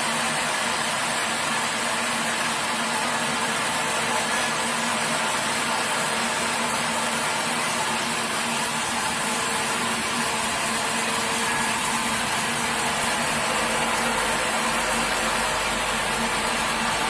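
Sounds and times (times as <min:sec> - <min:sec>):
motor hum: 0:05.1 - 0:17.0.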